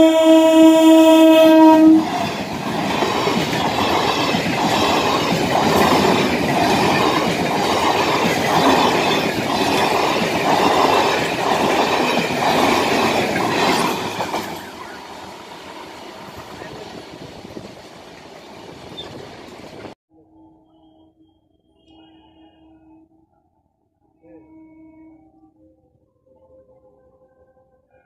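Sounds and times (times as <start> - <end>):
train horn blast: 0.0 - 2.4, 24.2 - 25.6.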